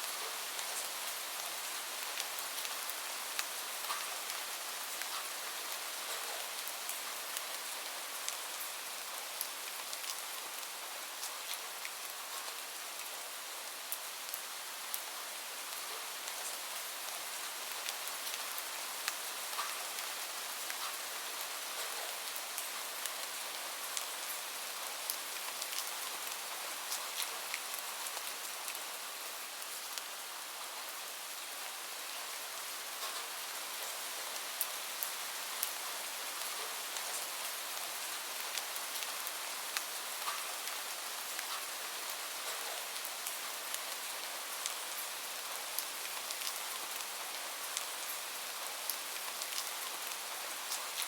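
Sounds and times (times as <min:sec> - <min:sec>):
raindrops ticking on a surface: 0:00.0 - 0:30.7, 0:31.3 - 0:51.0
steady rain hiss: 0:00.0 - 0:51.0.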